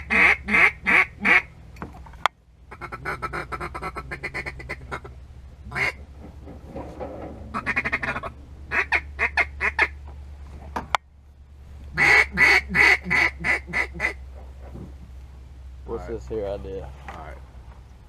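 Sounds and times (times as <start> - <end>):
duck call quacking: 0.0 - 1.5, 2.7 - 5.1, 5.7 - 6.0, 7.5 - 10.0, 12.0 - 14.2
steady low hum: 0.0 - 18.0.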